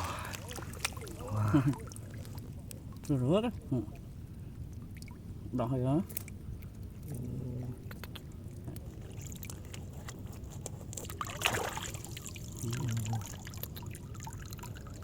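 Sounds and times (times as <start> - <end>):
water splash: 0.0 - 2.4, 11.2 - 14.3
water pouring and trickling: 0.0 - 3.8, 7.9 - 15.0.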